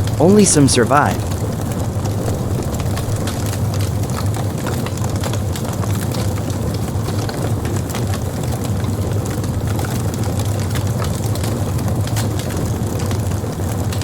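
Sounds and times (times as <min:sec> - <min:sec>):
low storm rumble: 0:00.0 - 0:07.3
rain patter: 0:00.0 - 0:14.0.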